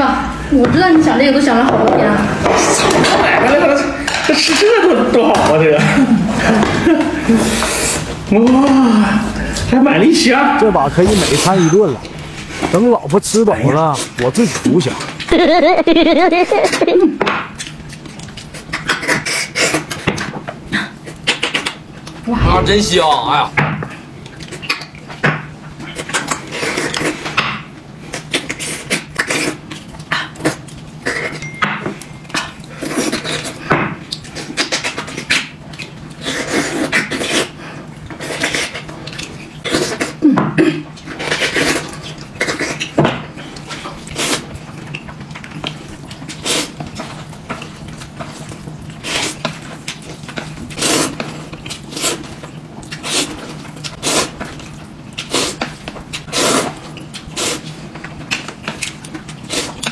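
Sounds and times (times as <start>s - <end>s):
mouth eating sounds: 28.1s - 31.4s, 50.7s - 59.9s
dishes and utensils clinking: 31.0s - 32.7s.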